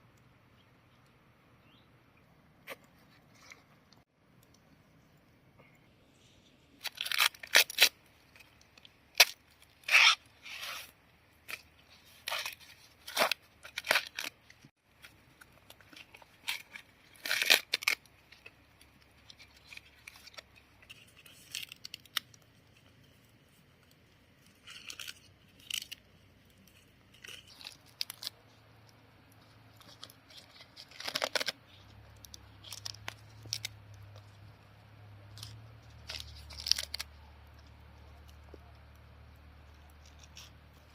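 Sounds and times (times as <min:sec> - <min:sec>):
tearing and rustling: 0:06.7 - 0:28.6, 0:29.2 - 0:34.5, 0:35.2 - 0:39.0, 0:39.7 - 0:40.9.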